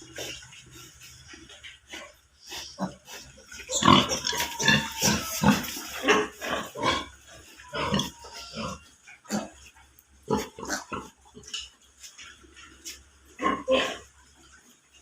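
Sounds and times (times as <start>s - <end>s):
piglets grunting and squealing: 1.9s - 11.7s, 13.3s - 14.2s.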